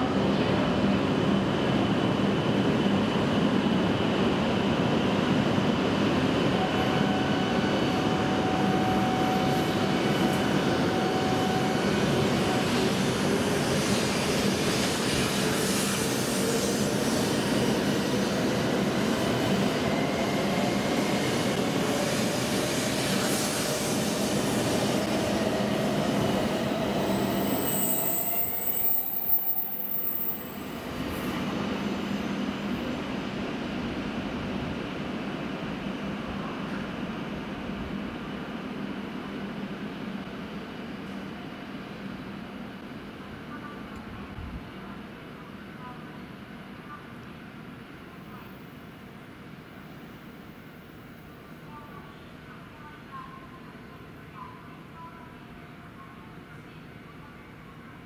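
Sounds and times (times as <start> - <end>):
train wheels rumbling on rail: 0.0 - 44.8.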